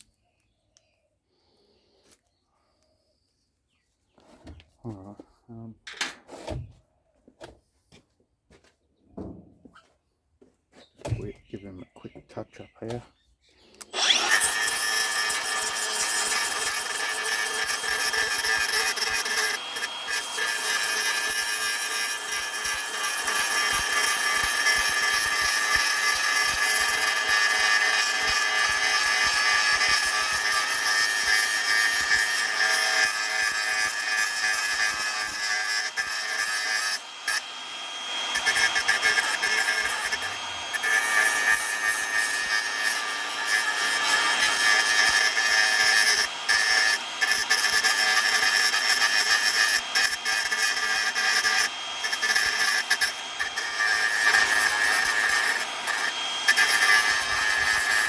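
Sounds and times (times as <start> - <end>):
power tool abrasive scrubbing: 13.8 - 58.0.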